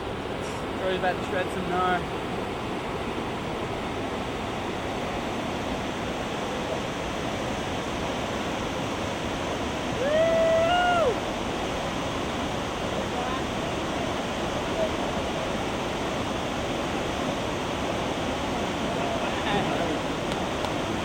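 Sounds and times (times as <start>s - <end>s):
roar of whitewater: 0.0s - 21.0s
person whooping: 10.0s - 11.2s.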